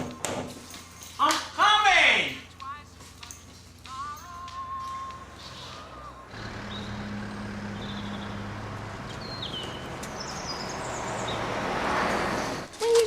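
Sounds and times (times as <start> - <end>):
vehicle engine passing: 5.0 - 12.7.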